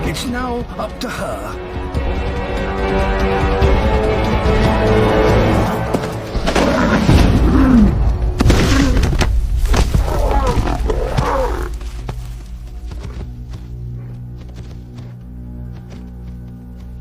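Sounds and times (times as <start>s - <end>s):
steady music: 0.0s - 8.4s
lions growling: 9.8s - 12.0s.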